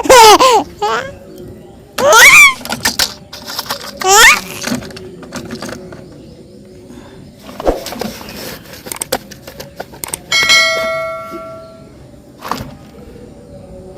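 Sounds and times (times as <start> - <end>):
clicks of objects handled: 7.6 - 10.3
small bell ringing: 10.3 - 11.9.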